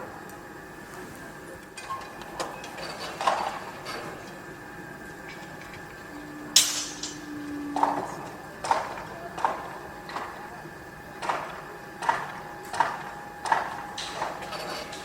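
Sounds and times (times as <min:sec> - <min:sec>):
machinery hum: 0:00.0 - 0:15.0
metal clanks and knocks: 0:06.6 - 0:07.2.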